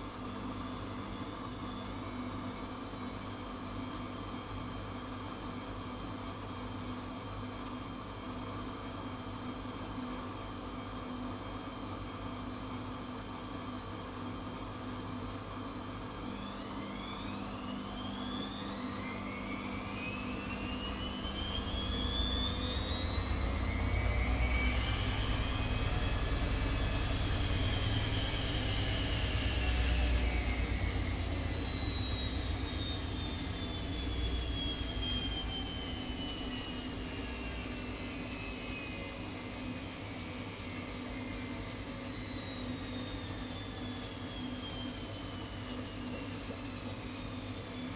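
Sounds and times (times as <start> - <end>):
washing machine spinning up: 14.0 - 47.9.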